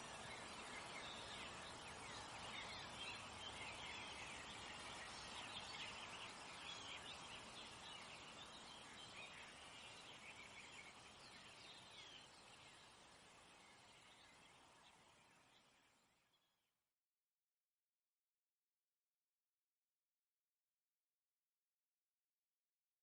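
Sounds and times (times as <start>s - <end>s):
small birds chirping: 0.0s - 16.6s
faint steady hiss: 0.0s - 16.8s.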